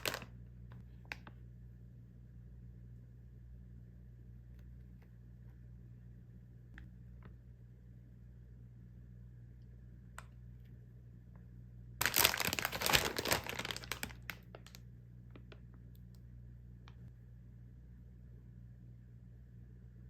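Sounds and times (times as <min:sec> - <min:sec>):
plastic packaging crinkling: 0:00.0 - 0:00.4, 0:12.0 - 0:14.8.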